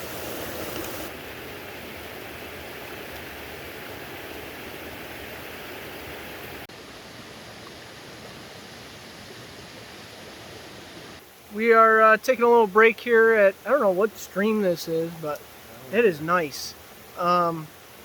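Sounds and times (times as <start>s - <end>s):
stream flowing: 0.0s - 18.0s.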